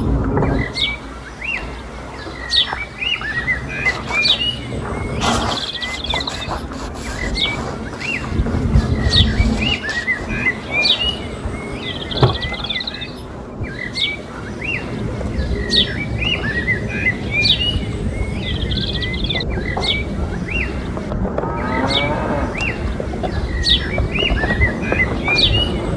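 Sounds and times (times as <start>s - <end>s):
birds chirping: 2.5s - 11.4s.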